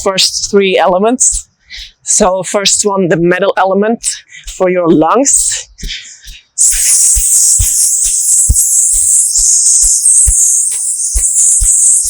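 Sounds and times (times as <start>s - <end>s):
hiss breathed through teeth: 1.8s - 2.1s, 5.3s - 12.0s
soft low beat: 4.0s - 12.0s.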